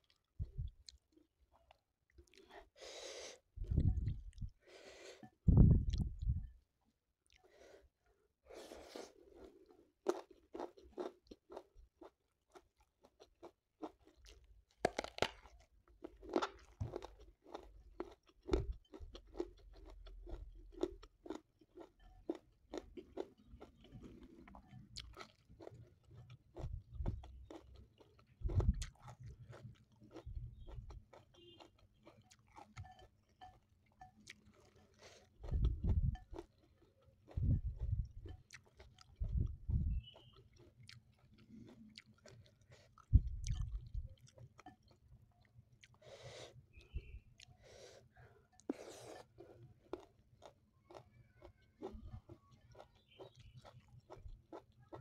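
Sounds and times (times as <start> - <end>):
person chewing crunchy food: 0.0 - 6.5, 8.5 - 55.0
wet mouth sounds: 3.4 - 4.6, 5.5 - 6.5, 28.4 - 29.3, 35.2 - 36.5, 37.3 - 44.4.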